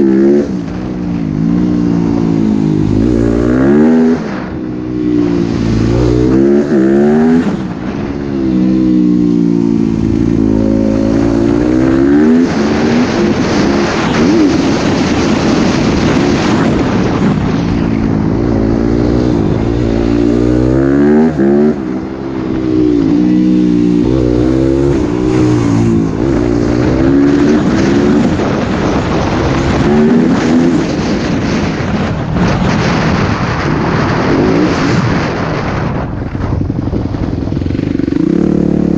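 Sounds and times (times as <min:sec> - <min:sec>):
motocross bike engine revving: 0:01.4 - 0:17.1, 0:18.0 - 0:31.6.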